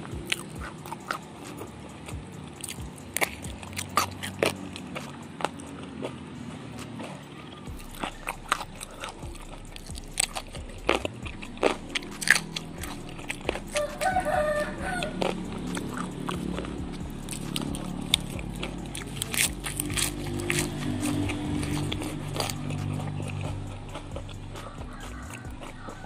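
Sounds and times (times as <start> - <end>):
crunching bites of raw greens: 0.0 - 26.0
chicken calling: 6.6 - 26.0.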